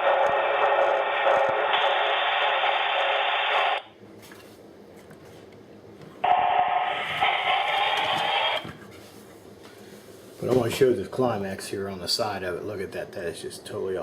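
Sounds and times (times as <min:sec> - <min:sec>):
steam hiss from small speaker: 0:00.0 - 0:03.8.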